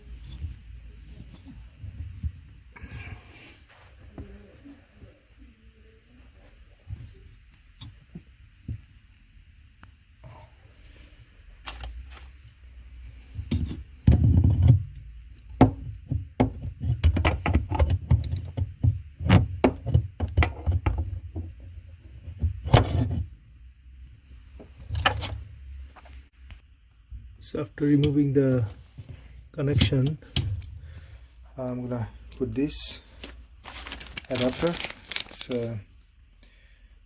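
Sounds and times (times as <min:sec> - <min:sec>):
low rumbling handling noise: 0:24.1 - 0:35.8.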